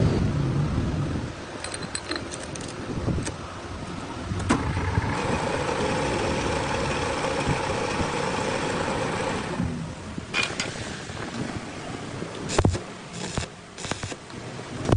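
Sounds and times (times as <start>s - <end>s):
lathe whining: 4.5s - 9.8s
sharp clicks: 12.4s - 14.2s.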